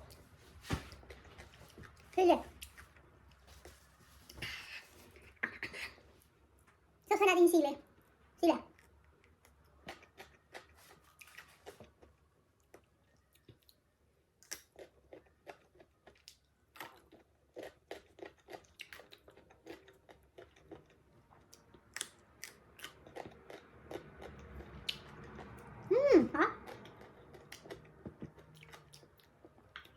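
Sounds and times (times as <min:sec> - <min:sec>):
crunchy chewing of raw mango: 0:08.8 - 0:13.7, 0:14.4 - 0:25.8.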